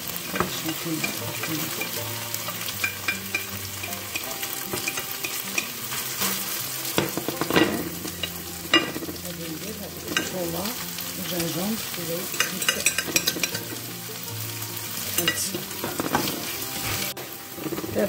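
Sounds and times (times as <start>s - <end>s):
food frying in a wok: 0.0s - 18.0s
utensil scraping and stirring: 0.0s - 18.0s
utensil knocking on pan: 2.8s - 5.7s, 6.9s - 9.2s, 12.3s - 13.7s.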